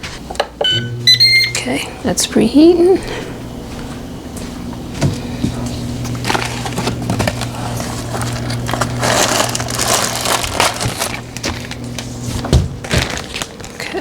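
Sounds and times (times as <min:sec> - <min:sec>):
air fryer humming: 0:00.0 - 0:14.0
plastic bag crinkling: 0:06.1 - 0:14.0.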